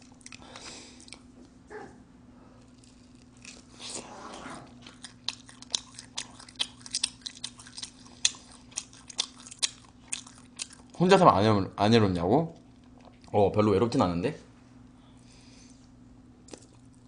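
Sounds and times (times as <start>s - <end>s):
person chewing with mouth clicks: 0.0s - 1.3s, 2.6s - 11.0s, 16.4s - 17.0s.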